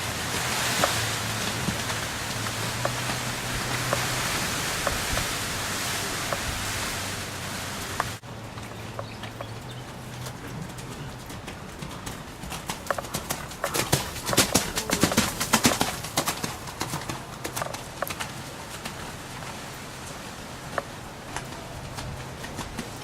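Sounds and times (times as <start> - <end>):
horse hoofbeats: 0.0 - 23.0
rain hissing: 0.0 - 23.0.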